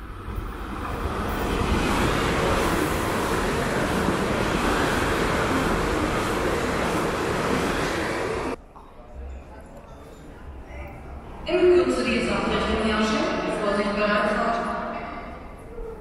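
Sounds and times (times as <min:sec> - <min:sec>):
electric train running past: 0:00.0 - 0:08.6.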